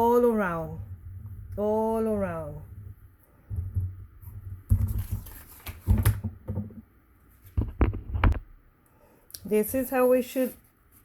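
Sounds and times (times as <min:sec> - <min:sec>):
cardstock rustling: 0:04.7 - 0:06.3.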